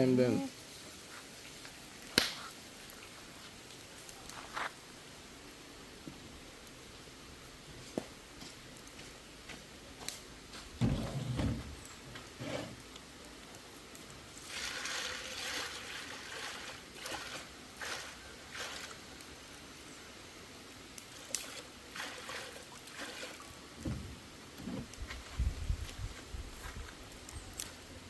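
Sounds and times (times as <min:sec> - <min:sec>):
water trickling and splashing: 0:14.3 - 0:19.6, 0:21.0 - 0:24.1.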